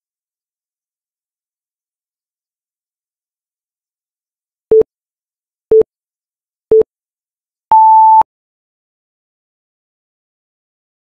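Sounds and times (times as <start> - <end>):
timer beeps: 7.7 - 8.2.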